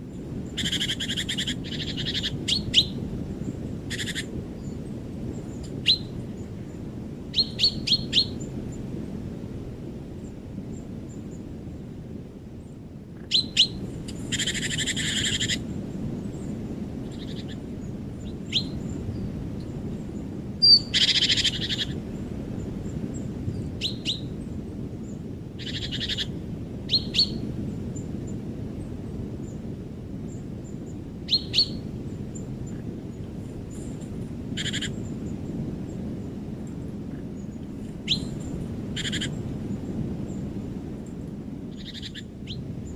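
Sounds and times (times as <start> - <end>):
harsh rasping bird calls: 0.6 - 3.0, 3.9 - 4.3, 13.2 - 15.6, 25.6 - 26.3, 34.6 - 35.0, 39.0 - 39.4, 41.8 - 42.6.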